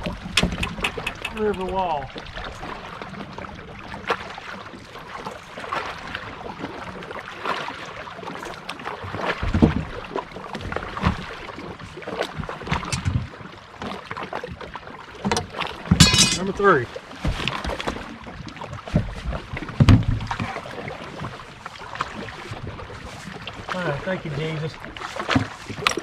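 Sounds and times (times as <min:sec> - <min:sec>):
water sloshing and splashing: 0:00.0 - 0:26.0
clicks and knocks: 0:12.7 - 0:13.2, 0:15.3 - 0:16.4.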